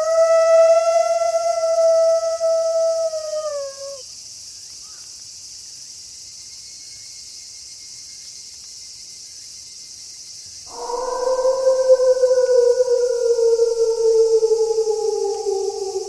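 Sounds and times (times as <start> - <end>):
wolf howl: 0.0 - 4.0, 10.7 - 16.0
high-pitched crickets chorus: 0.0 - 16.0.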